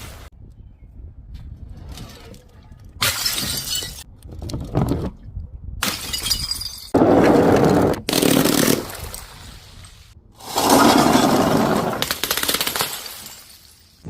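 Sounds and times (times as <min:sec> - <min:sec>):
glass bottles shattering: 0:03.0 - 0:04.1, 0:05.8 - 0:07.0, 0:10.6 - 0:14.0.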